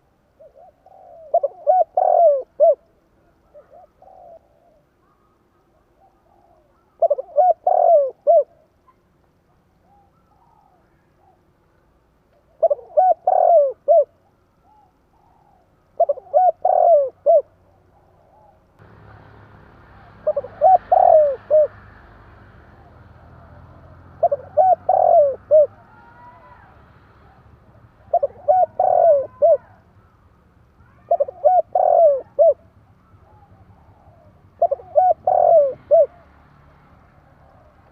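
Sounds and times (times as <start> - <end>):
dove cooing: 0.0 - 9.0, 12.4 - 18.6, 20.0 - 22.0, 22.7 - 30.2, 30.8 - 36.4.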